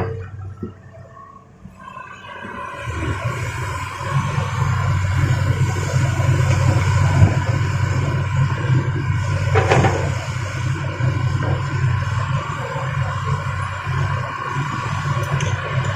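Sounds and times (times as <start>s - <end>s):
diesel machinery droning: 0.0s - 15.9s.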